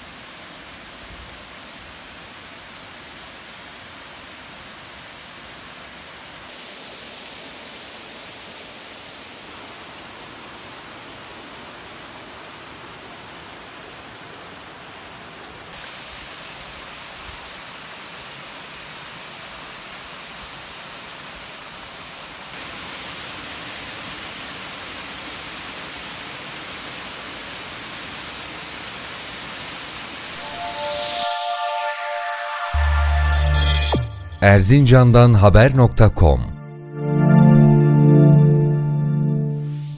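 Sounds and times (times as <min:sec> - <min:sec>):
waterfall rushing: 0:06.5 - 0:12.8.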